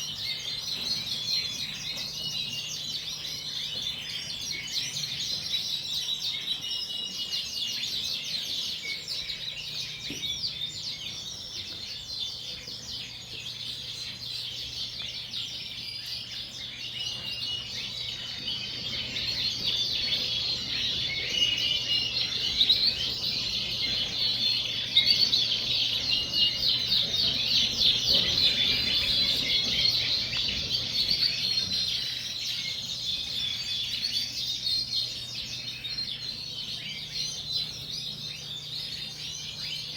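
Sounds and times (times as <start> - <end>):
canaries singing in chorus: 0.0 - 39.9.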